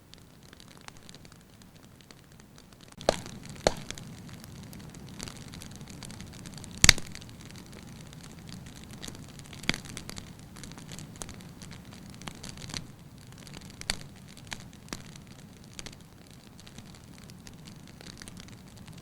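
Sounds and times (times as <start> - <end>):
firewood crackling and popping: 0.0 - 19.0
flames rushing: 2.3 - 19.0.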